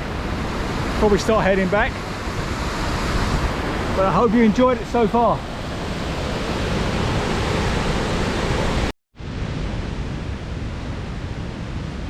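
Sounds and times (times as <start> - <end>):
waterfall roaring: 0.0 - 8.9.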